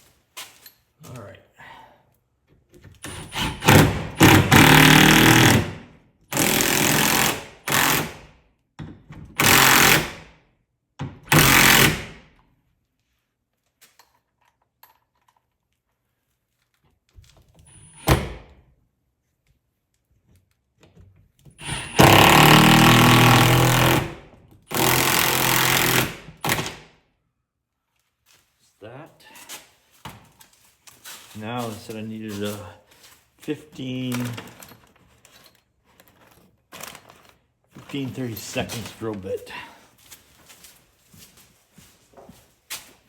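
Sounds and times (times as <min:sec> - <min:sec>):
cordless impact driver hammering: 0:03.0 - 0:08.2, 0:09.3 - 0:10.3, 0:11.0 - 0:12.2, 0:21.6 - 0:26.9.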